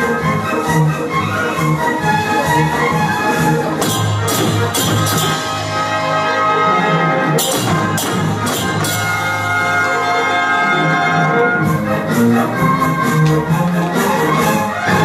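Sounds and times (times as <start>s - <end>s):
brass band march music: 0.0s - 15.0s
sharp percussion strikes: 3.7s - 6.4s, 7.4s - 10.0s.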